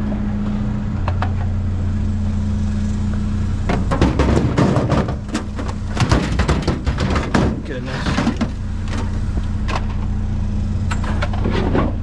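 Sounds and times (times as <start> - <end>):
vehicle engine idling: 0.0 - 12.0
junk clattering and knocking: 3.6 - 10.1, 10.9 - 12.0.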